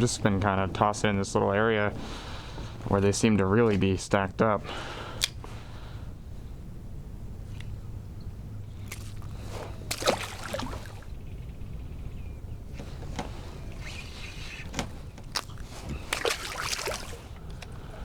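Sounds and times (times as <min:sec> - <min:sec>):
water sloshing around kayak: 0:08.6 - 0:11.4, 0:12.7 - 0:18.0.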